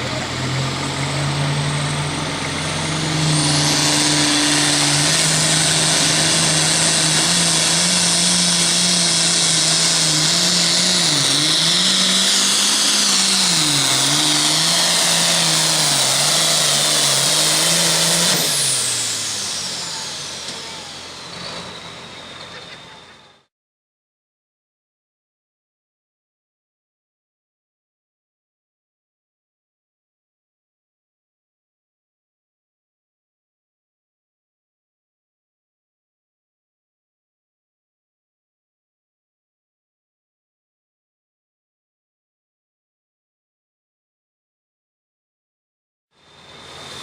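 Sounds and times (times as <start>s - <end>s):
diesel tractor engine at full throttle: 0.0s - 23.5s, 46.2s - 47.0s.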